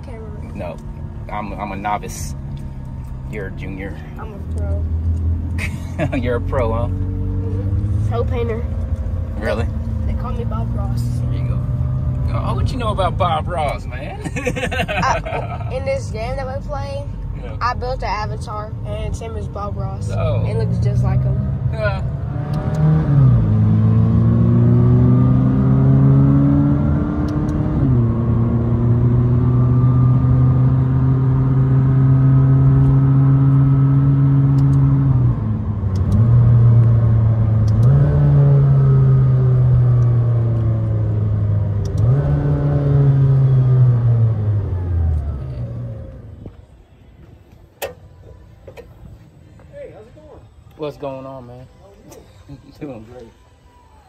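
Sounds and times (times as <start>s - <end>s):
sports car accelerating: 0.0s - 46.6s.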